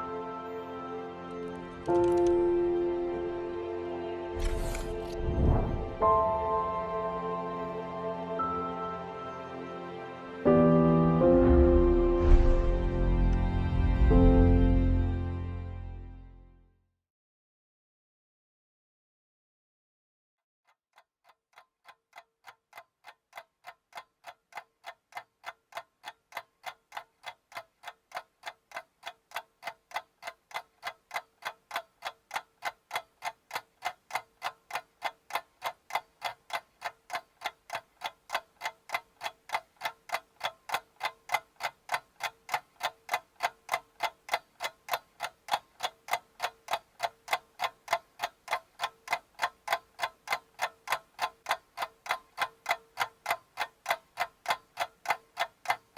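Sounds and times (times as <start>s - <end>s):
clock ticking: 20.7s - 55.9s.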